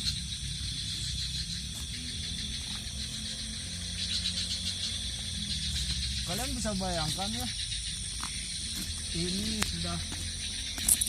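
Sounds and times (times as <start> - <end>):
crickets trilling: 0.0 - 11.0
low steady rumble: 0.0 - 11.0.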